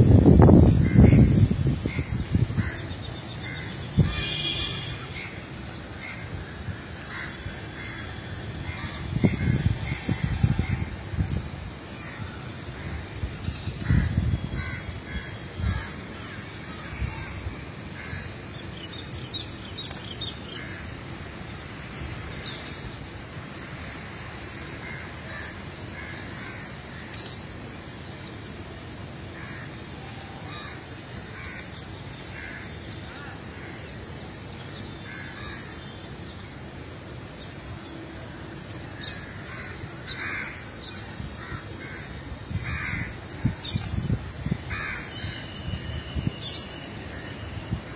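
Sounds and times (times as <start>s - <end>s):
low background noise: 0.0s - 47.9s
birds calling: 38.6s - 47.6s.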